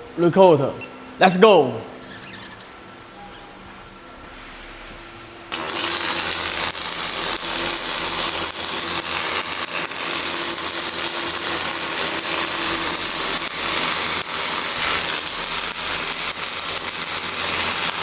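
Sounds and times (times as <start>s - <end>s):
welding arc crackling and sizzling: 4.7s - 18.0s.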